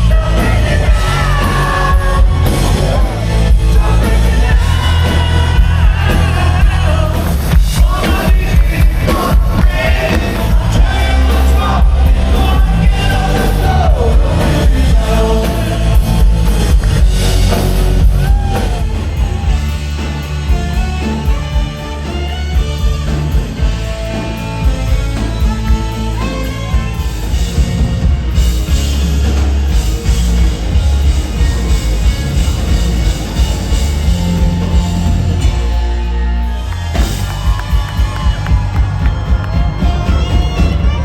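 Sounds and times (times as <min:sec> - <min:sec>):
person singing lead vocal: 0:00.0 - 0:16.9
live band playing: 0:00.0 - 0:41.0.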